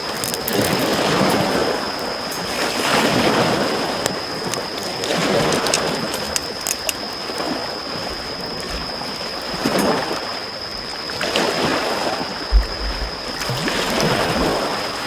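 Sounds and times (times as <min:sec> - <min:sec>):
campfire crackling: 0:00.0 - 0:10.0.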